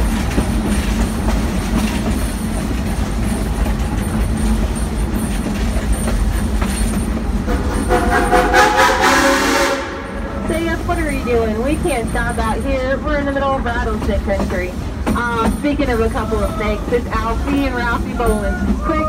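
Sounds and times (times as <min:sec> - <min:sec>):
train cars rumbling and rattling: 0:00.0 - 0:19.0
steam locomotive whistle: 0:07.5 - 0:10.4.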